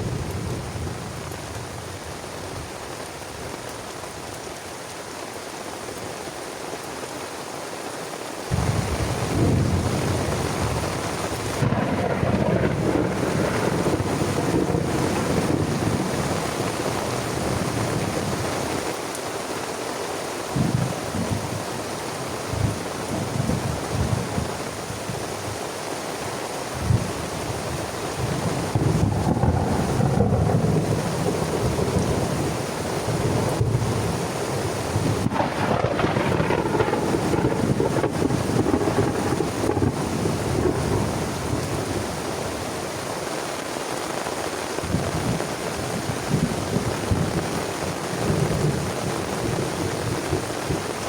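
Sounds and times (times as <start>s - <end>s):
heavy rain falling: 0.0s - 51.0s
thunder rumbling: 8.5s - 18.5s, 28.2s - 42.3s.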